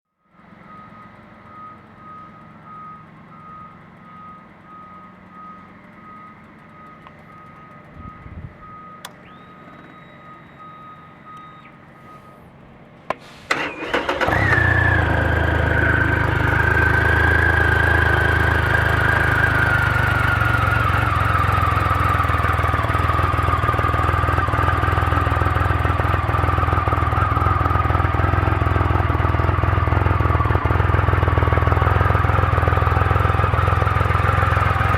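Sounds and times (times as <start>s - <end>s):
faint pulsing beep: 0.2s - 12.5s
motorcycle engine starting and running: 0.4s - 34.9s
starter clicks: 9.0s - 10.7s.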